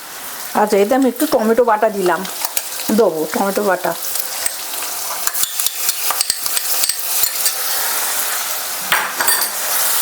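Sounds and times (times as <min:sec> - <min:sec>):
food sizzling in hot oil: 0:00.0 - 0:10.0
spatula scraping pan: 0:02.0 - 0:08.6.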